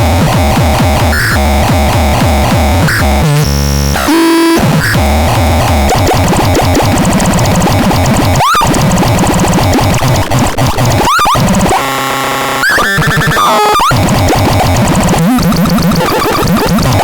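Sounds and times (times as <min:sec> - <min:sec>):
buzzing synth chord: 0:00.0 - 0:10.0
harsh synthesizer tones: 0:00.0 - 0:17.0.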